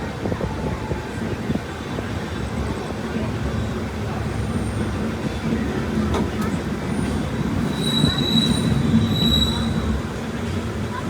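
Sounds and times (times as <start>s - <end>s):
train rumbling on rails: 0.0s - 11.0s
train wheels squealing: 6.8s - 10.5s.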